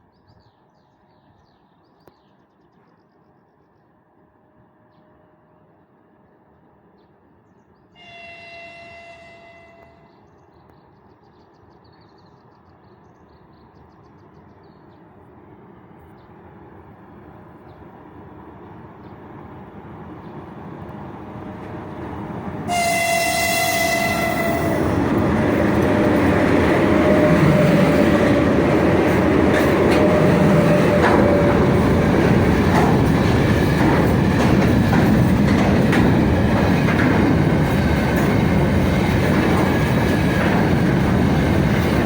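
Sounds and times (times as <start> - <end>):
locomotive horn blasts: 8.0 - 10.1, 22.7 - 25.0
freight train rumble: 8.0 - 10.4, 12.4 - 42.0.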